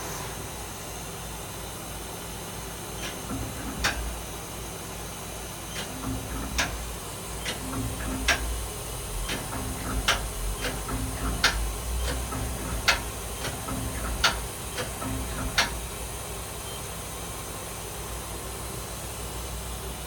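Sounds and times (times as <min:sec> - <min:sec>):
sharp clicks: 0:03.0 - 0:04.3, 0:05.7 - 0:15.9
machine motor tone: 0:03.0 - 0:04.7, 0:05.7 - 0:17.0
steady low hum: 0:03.0 - 0:04.8, 0:05.6 - 0:16.9.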